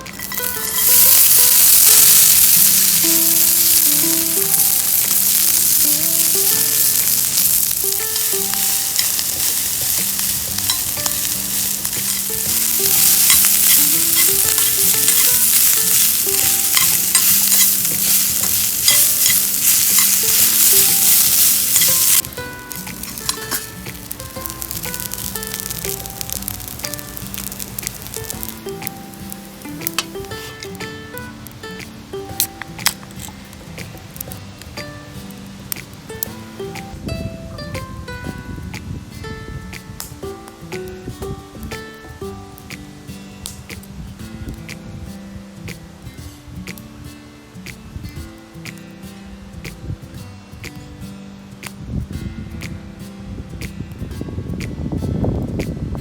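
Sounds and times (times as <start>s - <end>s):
food sizzling in a pan: 0.0s - 37.0s
small popping: 0.0s - 37.0s.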